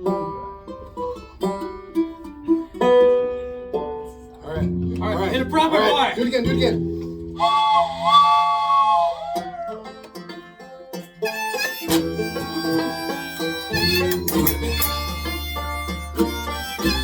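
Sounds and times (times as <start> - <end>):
banjo picking: 0.0 - 17.0
low bass notes: 4.1 - 7.4
harmonica chord: 11.2 - 17.0.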